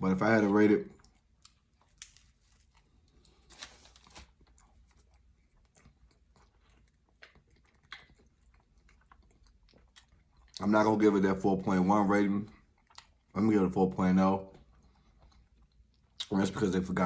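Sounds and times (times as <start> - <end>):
chewing food: 0.2 - 16.7
wet clicks and crunches: 0.4 - 4.7.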